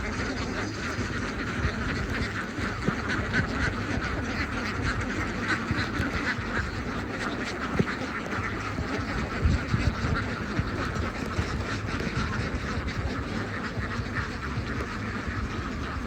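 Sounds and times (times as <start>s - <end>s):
ducks quacking: 0.0s - 16.0s.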